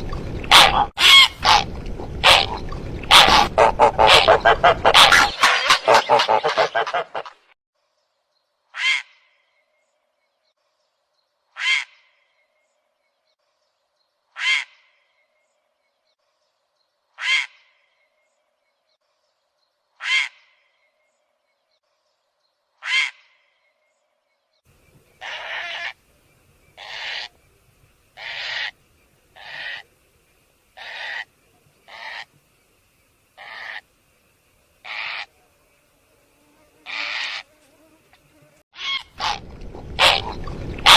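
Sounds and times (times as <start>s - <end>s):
longer bird calls: 0.0s - 7.3s, 22.8s - 29.9s
faint hiss: 24.7s - 38.6s.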